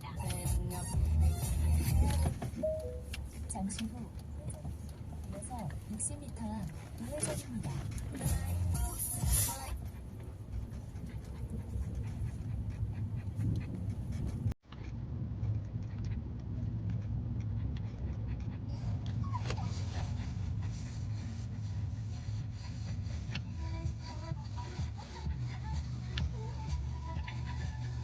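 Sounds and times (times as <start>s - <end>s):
dog panting: 0.0s - 28.0s
road rumble in car: 0.0s - 28.0s
dog whining: 18.6s - 20.1s.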